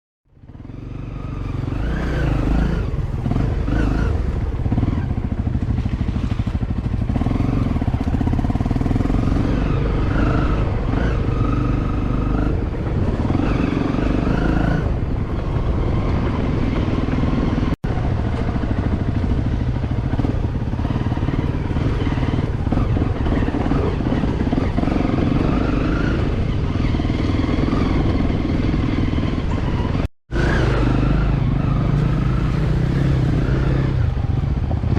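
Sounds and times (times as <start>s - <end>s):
dirt bike engine revving: 0.6s - 34.9s.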